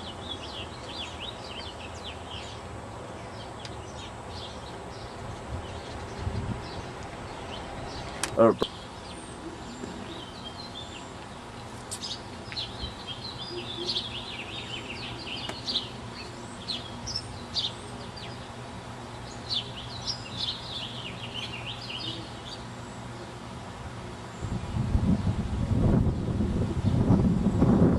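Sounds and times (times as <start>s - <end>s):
songbirds chirping: 0.0s - 27.2s.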